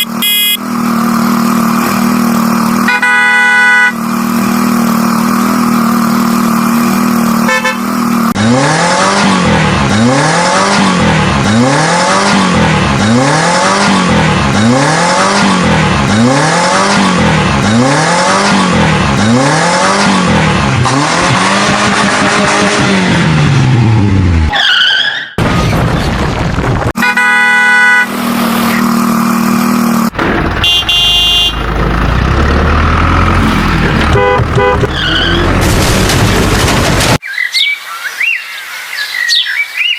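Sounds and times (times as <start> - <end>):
short horn chirps and toots: 0.0 - 0.6, 2.8 - 4.0, 7.4 - 7.9, 30.6 - 31.6
vehicle horn blasts: 0.0 - 0.6, 2.8 - 4.0, 7.4 - 8.0, 27.0 - 28.3, 30.6 - 31.6, 34.1 - 35.2
horn tone sliding up and down: 0.0 - 4.9, 6.2 - 9.4, 27.0 - 31.7, 33.4 - 35.6.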